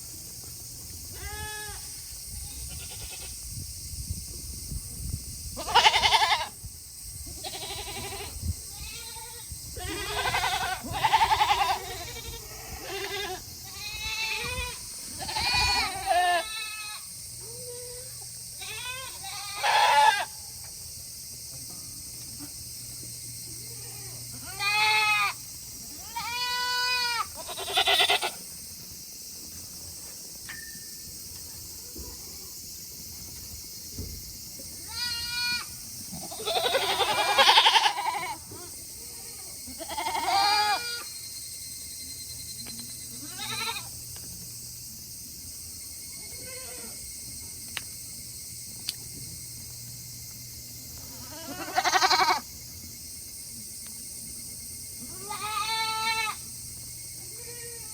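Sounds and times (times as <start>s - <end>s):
goats bleating: 5.6s - 6.5s, 7.4s - 17.0s, 23.9s - 25.4s, 26.0s - 28.4s, 34.9s - 41.0s, 43.2s - 43.9s, 51.2s - 52.4s, 55.1s - 56.4s.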